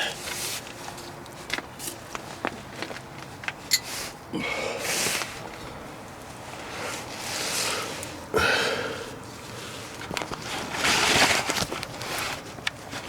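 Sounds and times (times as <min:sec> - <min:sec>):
man sniffing: 0:04.3 - 0:05.4, 0:07.0 - 0:09.2
man breathing: 0:04.3 - 0:10.0.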